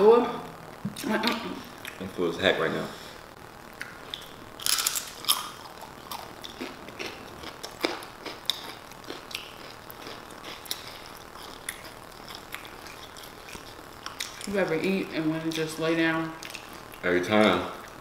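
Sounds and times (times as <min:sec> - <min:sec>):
crunching tortilla chips: 0:04.1 - 0:14.6.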